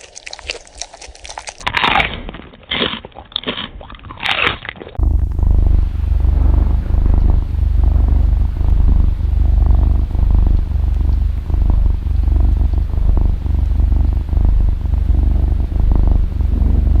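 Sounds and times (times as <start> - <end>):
cat purring: 5.0 - 17.0.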